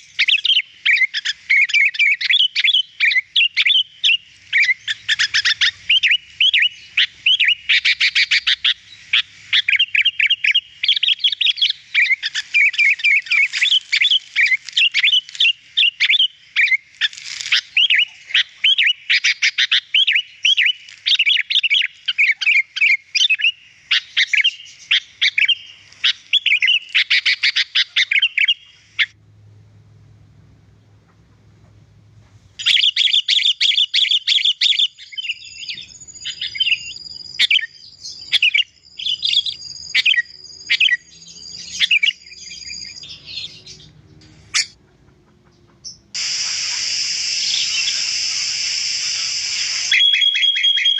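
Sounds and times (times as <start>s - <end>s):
bird singing chirps and whistles: 0.0s - 8.8s, 9.5s - 16.8s, 17.5s - 29.1s, 32.6s - 43.9s, 46.2s - 50.9s.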